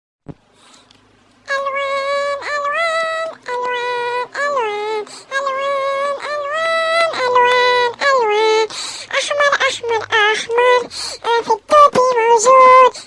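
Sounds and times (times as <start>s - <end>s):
toy singing in synthetic voice: 1.5s - 13.0s.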